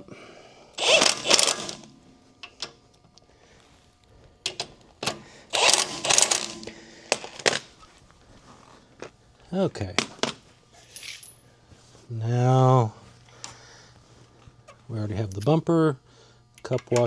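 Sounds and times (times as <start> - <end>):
ratchet wrench clicking: 0.8 - 2.6, 5.5 - 7.6.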